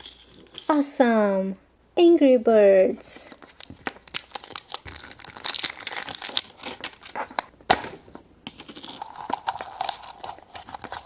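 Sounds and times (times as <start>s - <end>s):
wrapper crinkling and tearing: 3.3s - 7.5s, 8.5s - 11.0s.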